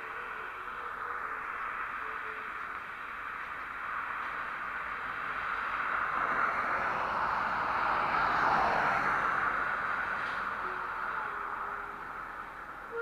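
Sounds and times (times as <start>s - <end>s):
vehicle passing by: 0.2s - 12.8s.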